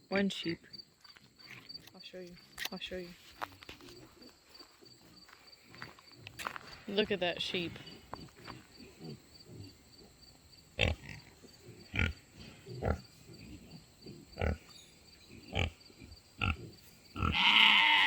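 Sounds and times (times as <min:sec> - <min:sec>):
pig grunting: 0:07.8 - 0:10.2, 0:10.8 - 0:18.0.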